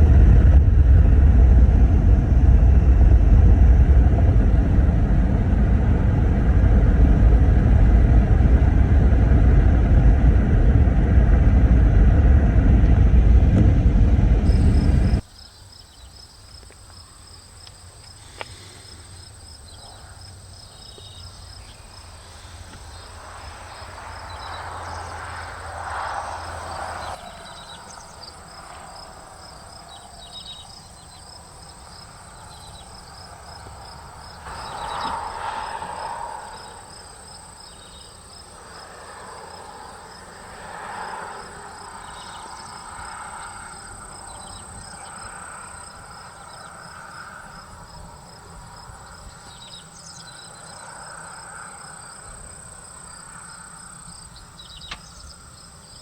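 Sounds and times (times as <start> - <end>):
rushing noise: 0.0 - 15.3, 18.4 - 49.2
fast pulsing insect chirp: 14.5 - 56.0
insects trilling: 14.5 - 56.0.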